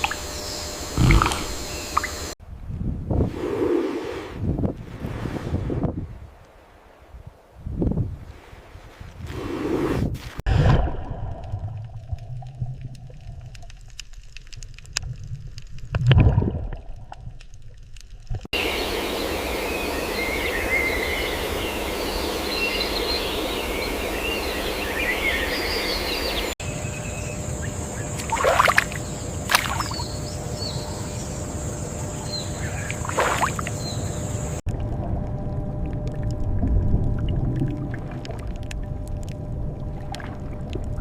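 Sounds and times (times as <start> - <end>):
small birds chirping: 0.0 - 2.4, 18.6 - 31.4.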